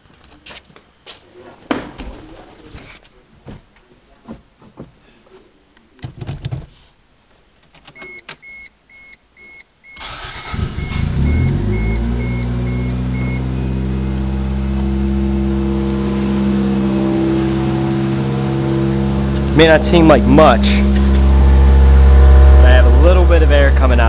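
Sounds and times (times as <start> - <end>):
car engine starting and idling: 10.0 - 24.0
short beeps: 10.8 - 13.4.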